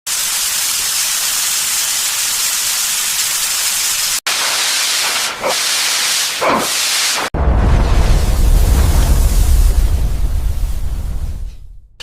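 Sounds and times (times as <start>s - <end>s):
loud steady hiss: 0.2s - 7.3s.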